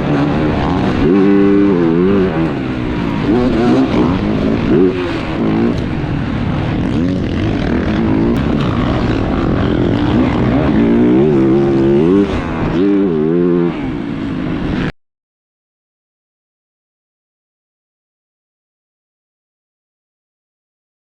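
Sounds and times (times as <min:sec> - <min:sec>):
motocross engine revving: 0:00.0 - 0:14.9
steady rushing noise: 0:00.0 - 0:14.9.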